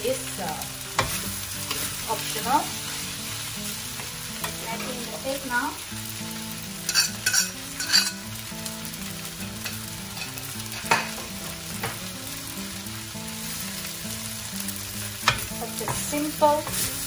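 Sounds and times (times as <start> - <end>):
rice sizzling in a wok: 0.0 - 17.0
metal spatula scraping wok: 1.0 - 4.1, 6.8 - 8.3
spatula clacking against wok: 6.8 - 8.2, 15.2 - 17.0.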